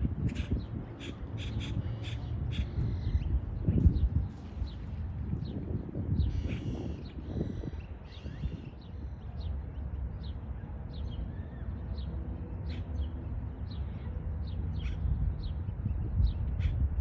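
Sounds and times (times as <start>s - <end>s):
steady low rumble: 0.0s - 9.5s.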